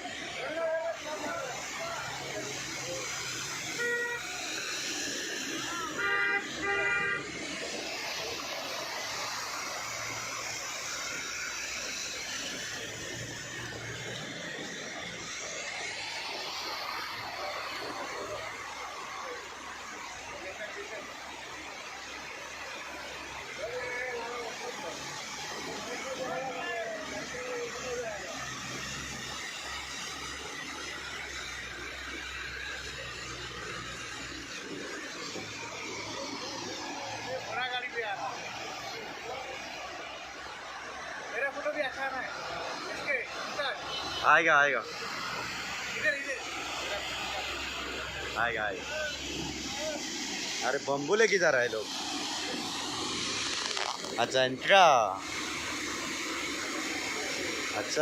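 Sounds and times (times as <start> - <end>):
roadside background noise: 0.0 - 58.0
traffic rumble: 0.0 - 58.0
vehicle engine humming: 0.0 - 58.0.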